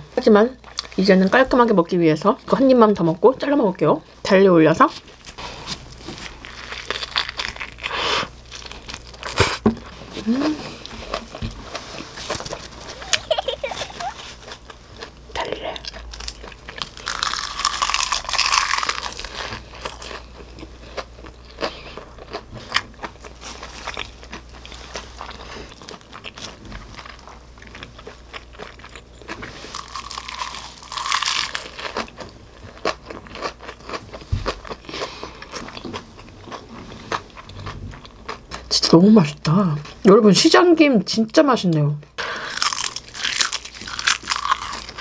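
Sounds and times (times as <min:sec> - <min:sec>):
crunchy bites and chewing: 0:05.9 - 0:09.9, 0:14.1 - 0:38.7, 0:42.5 - 0:45.0.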